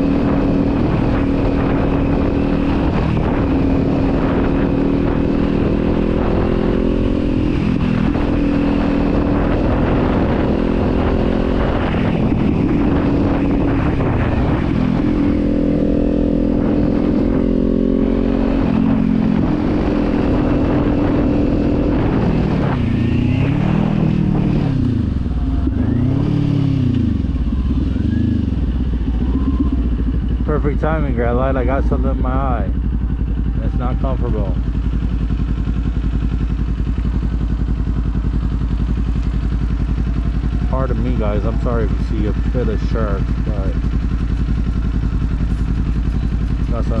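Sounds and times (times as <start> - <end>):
wind rush: 0.0 - 27.4
motorcycle engine and exhaust: 0.0 - 47.0.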